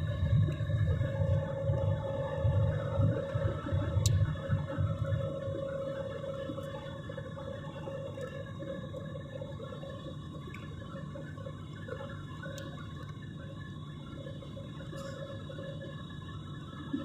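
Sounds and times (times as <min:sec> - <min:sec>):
airliner engine hum: 0:00.0 - 0:08.4.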